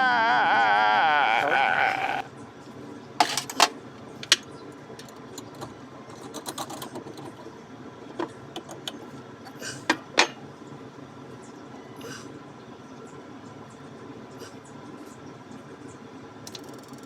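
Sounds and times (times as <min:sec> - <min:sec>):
tools clicking and knocking: 0:03.2 - 0:07.5.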